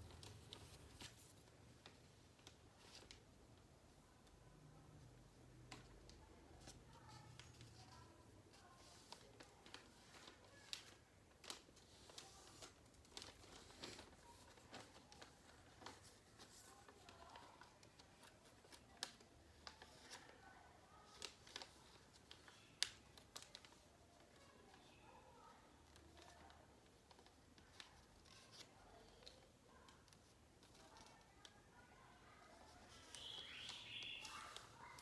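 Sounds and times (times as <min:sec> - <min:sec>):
paper rustling and crinkling: 0:00.0 - 0:03.4, 0:05.7 - 0:35.0
paper crackling as folds pressed: 0:09.0 - 0:20.3.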